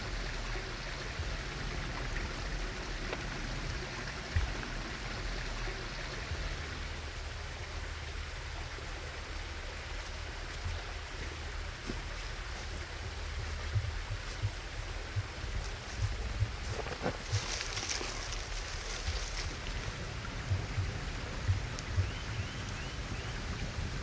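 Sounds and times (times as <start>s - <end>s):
low rumble: 0.0s - 9.7s, 10.7s - 24.0s
running water rushing: 0.0s - 24.0s
faint clicks: 13.7s - 24.0s.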